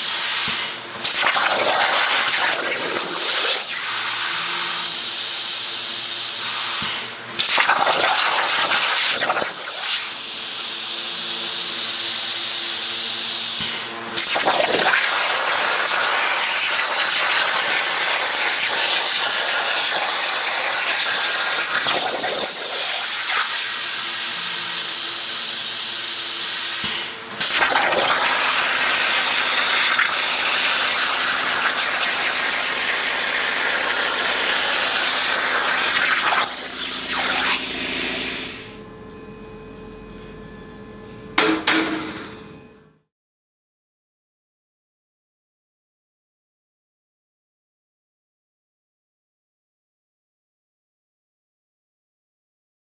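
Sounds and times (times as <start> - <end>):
plasma torch hissing: 0.0 - 4.2, 13.6 - 23.8, 26.6 - 38.8.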